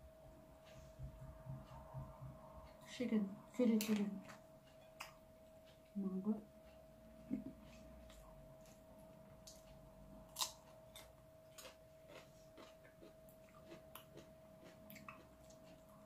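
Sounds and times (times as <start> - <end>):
faint steady hum: 0.0 - 16.0
chewing with wet mouth clicks: 10.3 - 16.0.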